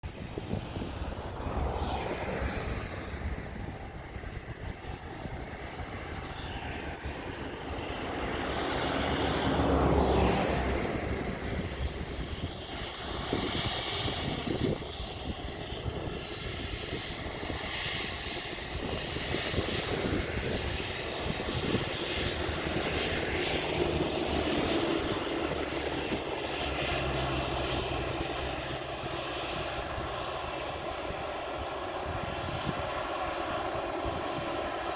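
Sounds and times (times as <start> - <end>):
jet engines running: 0.0 - 34.9.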